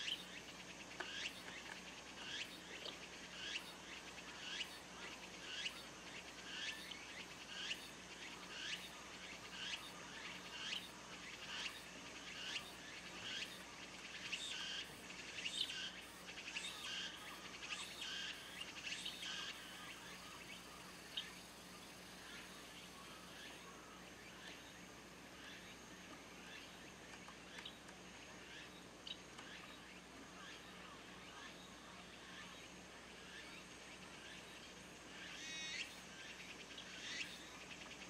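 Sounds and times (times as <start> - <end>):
cicada calling: 0.0 - 25.8, 34.2 - 38.0.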